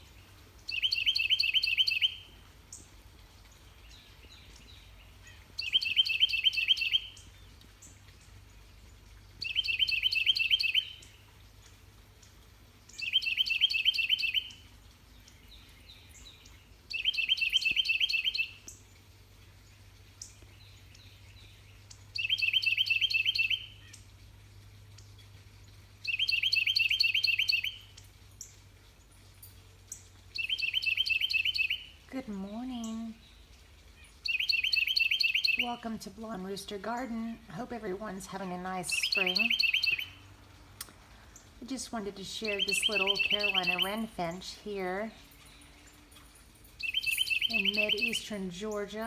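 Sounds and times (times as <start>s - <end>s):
wren singing: 0.7s - 2.8s, 3.8s - 7.3s, 9.4s - 11.1s, 12.9s - 14.6s, 15.3s - 18.8s, 22.2s - 24.0s, 26.0s - 28.0s, 30.4s - 33.4s, 34.2s - 49.0s
faint bird chirps: 5.2s - 7.3s, 15.2s - 18.8s, 34.0s - 35.8s, 38.9s - 40.3s, 42.2s - 48.8s.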